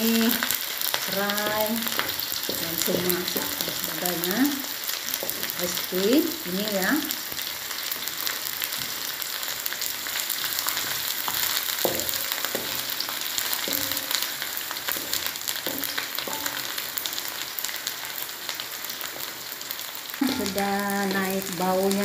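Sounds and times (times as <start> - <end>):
aromatics sizzling in oil: 0.0 - 22.0
wooden spatula knocking on pan: 1.3 - 4.3, 5.2 - 5.8, 10.7 - 16.8.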